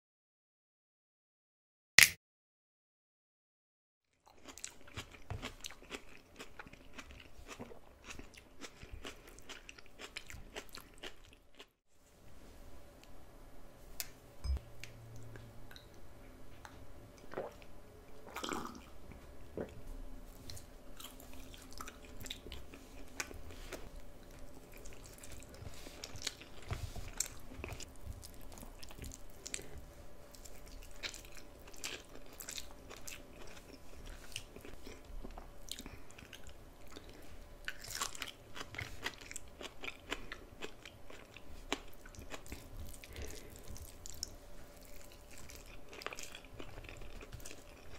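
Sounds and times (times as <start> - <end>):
chewing and mouth clicks: 30.4 - 47.9.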